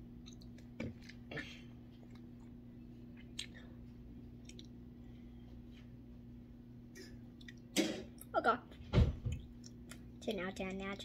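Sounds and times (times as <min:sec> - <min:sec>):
steady low hum: 0:00.0 - 0:11.0
child chewing candy: 0:00.2 - 0:04.8.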